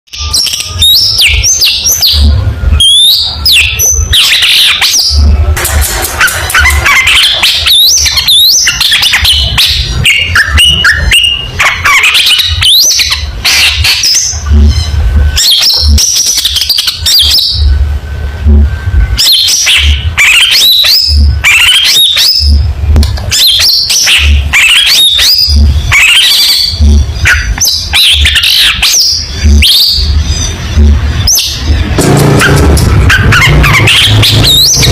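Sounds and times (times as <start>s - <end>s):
low rumbles: 29.2s - 34.9s.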